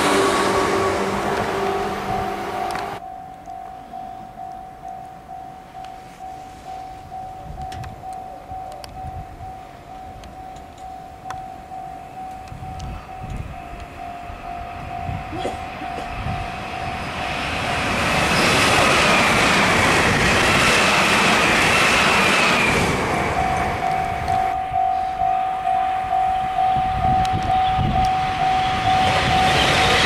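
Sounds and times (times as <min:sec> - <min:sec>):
train wheels rushing: 0:00.0 - 0:03.0, 0:15.0 - 0:25.2, 0:26.0 - 0:30.0
level crossing warning bell: 0:00.0 - 0:18.2, 0:22.9 - 0:30.0.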